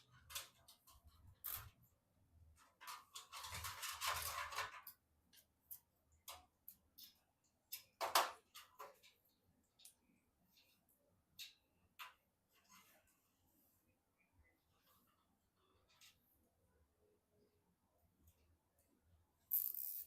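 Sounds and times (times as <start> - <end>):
small clicks and taps: 2.6 - 12.7.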